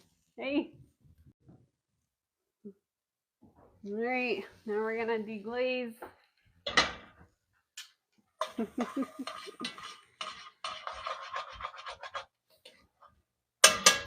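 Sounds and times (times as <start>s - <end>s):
utensil clatter: 8.4s - 12.4s
utensil scraping bottom of pot: 8.4s - 12.8s.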